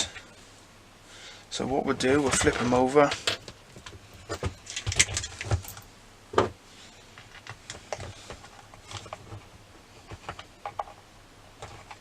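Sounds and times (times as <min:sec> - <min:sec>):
plastic parts clicking and tapping: 0:10.1 - 0:11.0, 0:11.6 - 0:12.0.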